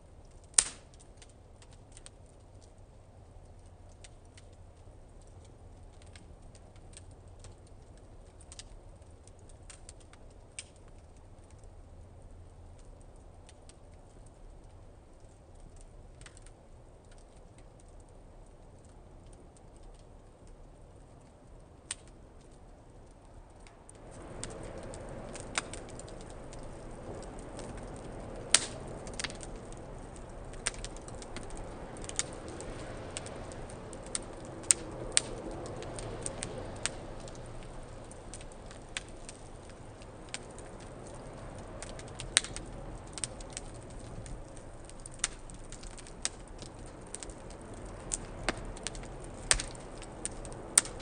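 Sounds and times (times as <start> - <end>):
fire crackling and popping: 0.0 - 51.0
flames rushing: 15.7 - 51.0.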